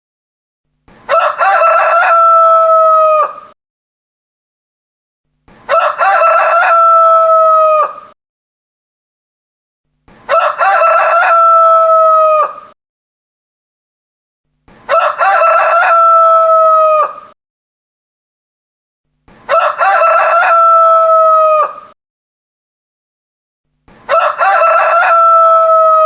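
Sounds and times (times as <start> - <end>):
rooster crowing: 1.1 - 3.6, 5.7 - 8.2, 10.3 - 12.8, 14.9 - 17.4, 19.5 - 22.0, 24.1 - 26.0.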